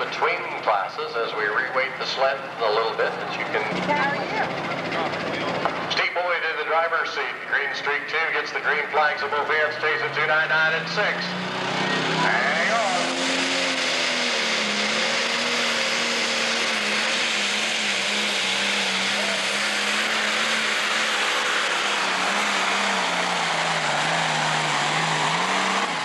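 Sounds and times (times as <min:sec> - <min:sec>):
diesel engine at full throttle: 0:00.0 - 0:26.0.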